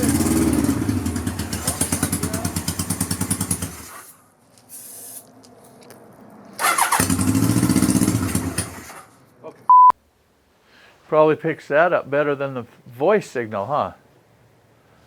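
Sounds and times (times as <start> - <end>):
motorcycle engine running: 0.0 - 4.0, 6.6 - 8.9.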